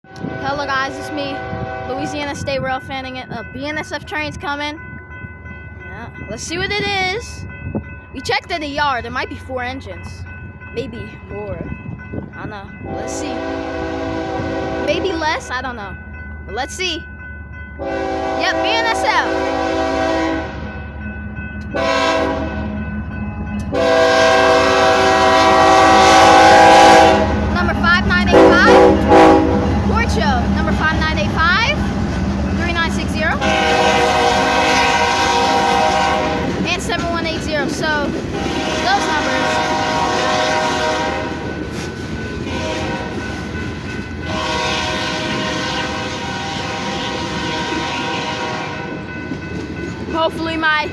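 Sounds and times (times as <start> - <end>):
train rumbling: 0.0 - 50.9
locomotive air horn blasts: 0.2 - 2.0, 12.9 - 14.9, 17.8 - 20.6, 21.8 - 22.7, 23.7 - 27.5, 28.3 - 29.8, 33.4 - 36.6, 38.4 - 41.4, 42.5 - 43.2, 44.3 - 48.9.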